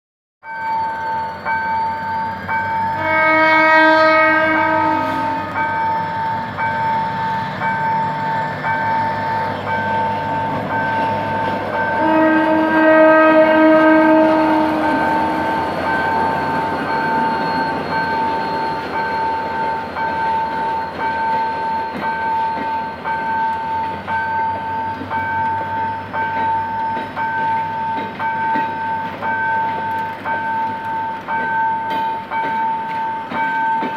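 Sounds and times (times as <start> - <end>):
crossing warning bell: 0.4 - 33.9
train wheels clattering: 1.5 - 33.9
locomotive horn: 3.0 - 5.8, 11.1 - 16.7.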